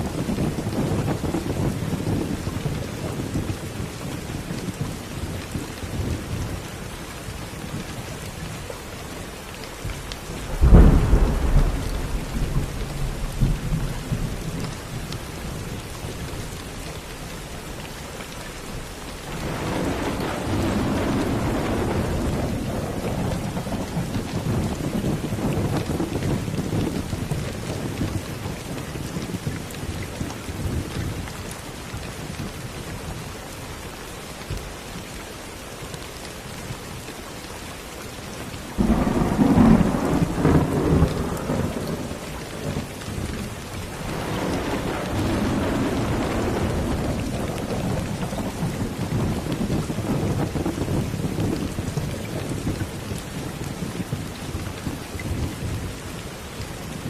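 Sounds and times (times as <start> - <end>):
steady rain: 0.0 - 57.0
thunder rumbling: 10.2 - 17.8, 19.0 - 28.4, 38.7 - 55.8
loud thunderclap: 10.4 - 15.1, 19.3 - 27.3, 38.8 - 42.9, 43.9 - 51.6.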